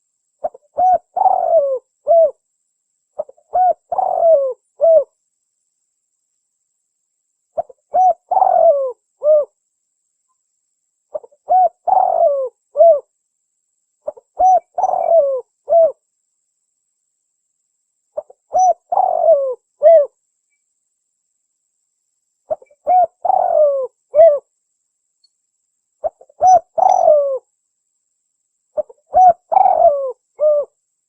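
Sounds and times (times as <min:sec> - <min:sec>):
dove cooing: 0:00.4 - 0:02.4, 0:03.2 - 0:05.1, 0:07.6 - 0:09.6, 0:11.1 - 0:13.1, 0:14.1 - 0:16.0, 0:18.2 - 0:20.2, 0:22.5 - 0:24.5, 0:26.0 - 0:27.5, 0:28.8 - 0:30.8.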